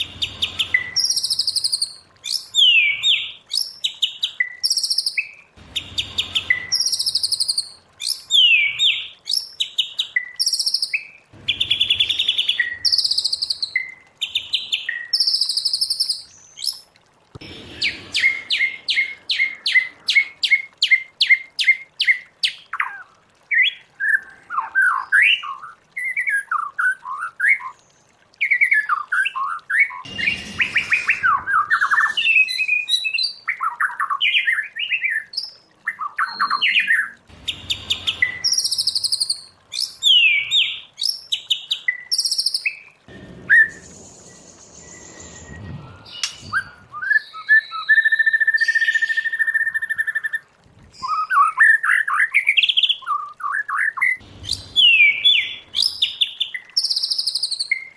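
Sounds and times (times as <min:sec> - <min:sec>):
bird singing whistled phrases: 0:00.5 - 0:03.6, 0:06.3 - 0:09.4, 0:28.4 - 0:40.8, 0:43.5 - 0:50.3, 0:51.0 - 0:57.9.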